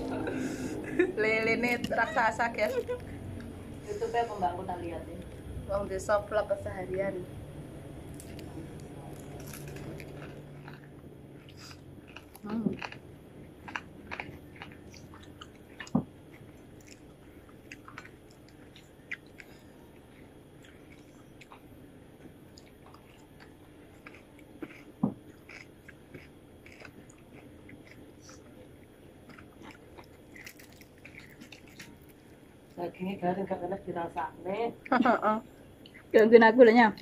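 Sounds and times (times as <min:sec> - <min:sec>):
person chewing crispy food: 0:08.1 - 0:21.7, 0:22.5 - 0:32.8.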